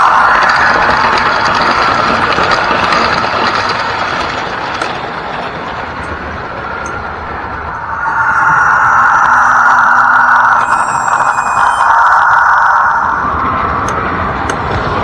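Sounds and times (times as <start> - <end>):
diesel engine sound from small speaker: 0.0 - 11.8
model train mechanism and wheels: 0.0 - 15.0.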